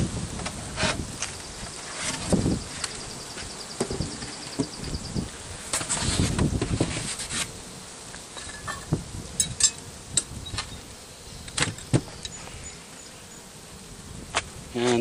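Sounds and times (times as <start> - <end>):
honeybees buzzing: 0.0 - 15.0
wooden hive parts knocking: 1.2 - 5.0.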